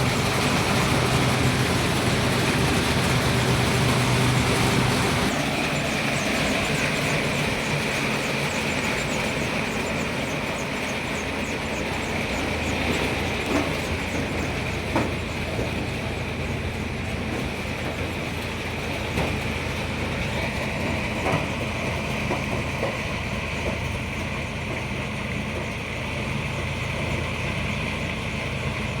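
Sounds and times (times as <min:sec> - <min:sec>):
harvester mechanical din: 0:00.0 - 0:07.9.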